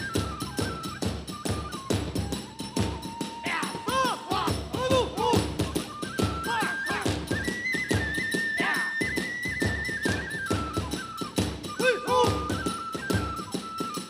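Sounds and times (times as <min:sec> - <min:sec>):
fast drum beats: 0:00.0 - 0:08.7
bamboo flute melody: 0:00.0 - 0:14.0.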